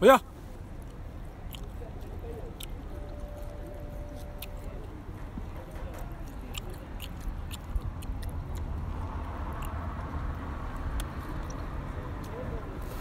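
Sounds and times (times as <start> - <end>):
steady low rumble: 0.6 - 12.8
person chewing meat: 0.8 - 5.0, 6.0 - 11.6.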